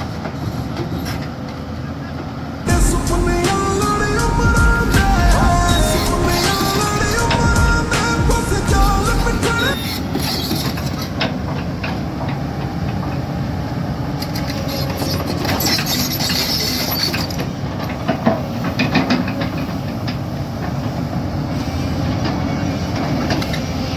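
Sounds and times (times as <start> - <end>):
excavator running: 0.0 - 23.9.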